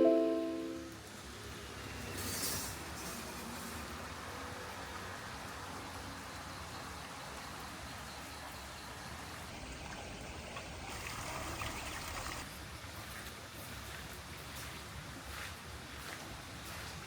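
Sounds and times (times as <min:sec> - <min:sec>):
rain falling: 0:02.8 - 0:08.0, 0:09.5 - 0:12.4
water running and trickling: 0:09.5 - 0:12.5.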